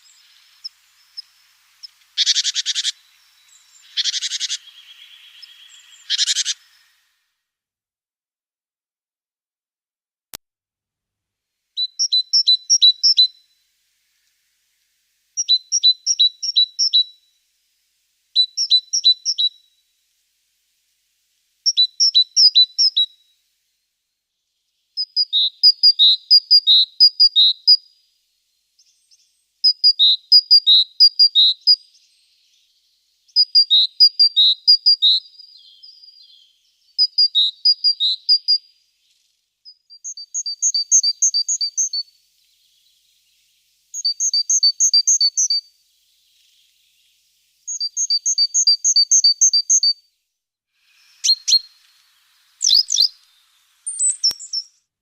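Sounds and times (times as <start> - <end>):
songbird two-note calls: 1.9 - 7.0, 52.6 - 53.2.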